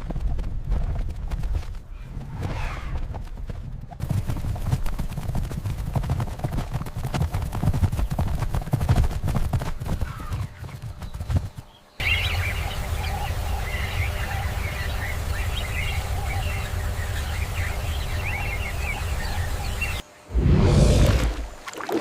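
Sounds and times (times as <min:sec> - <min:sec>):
birds chirping and calling: 0:10.0 - 0:20.0
low rumble: 0:20.3 - 0:21.6.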